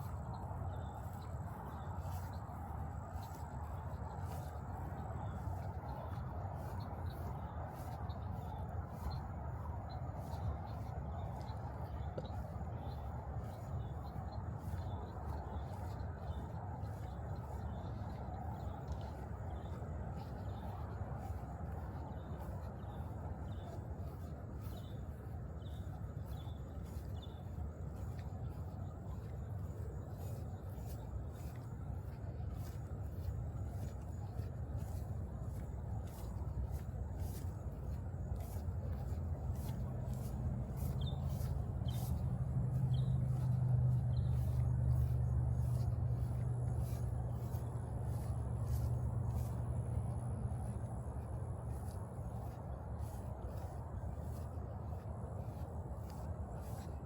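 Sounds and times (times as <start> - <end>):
low engine hum: 0.0 - 57.0
faint regular ticks: 25.6 - 57.0
small bird chirping: 38.4 - 49.5.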